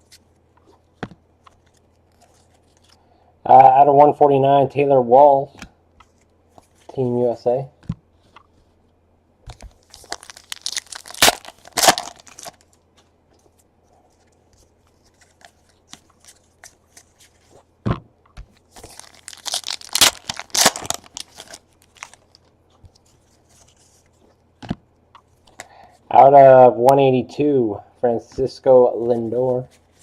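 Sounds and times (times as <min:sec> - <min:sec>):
foil wrapper tearing and crinkling: 0:09.8 - 0:12.6, 0:18.8 - 0:22.4.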